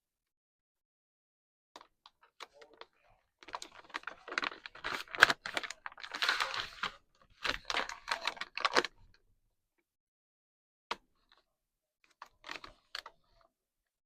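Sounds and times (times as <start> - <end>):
plastic bag crinkling: 3.4 - 9.1.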